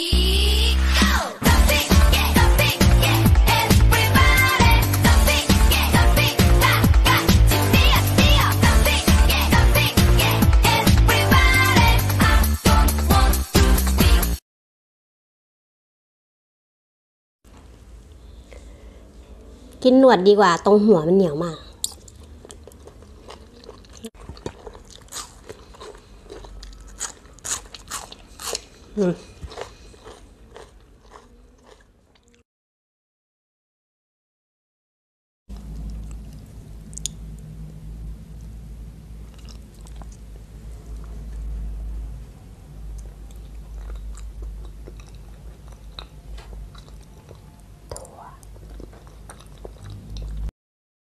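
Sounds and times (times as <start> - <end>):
chewing crunches: 21.8 - 32.4, 35.5 - 37.3, 39.2 - 40.3, 42.9 - 50.5
low hum: 35.5 - 48.8
wet mouth clicks and smacks: 35.6 - 37.4.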